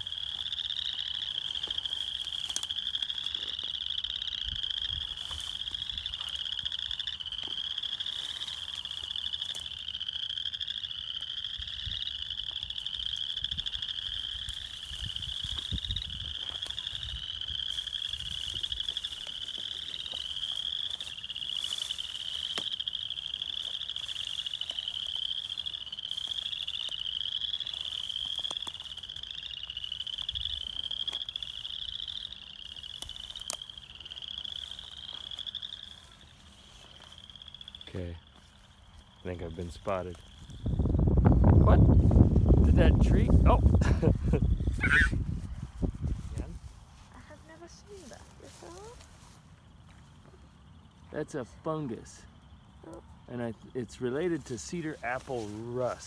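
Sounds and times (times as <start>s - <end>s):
chorus of frogs calling: 0.0s - 56.0s
wind rumble on microphone: 4.1s - 6.7s, 11.5s - 19.3s, 39.6s - 47.1s.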